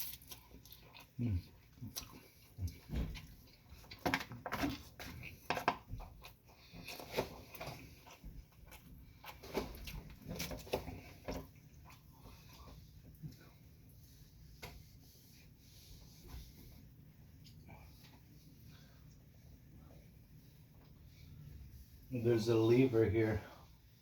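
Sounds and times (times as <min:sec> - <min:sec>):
close chewing mouth noises: 0:00.0 - 0:14.0.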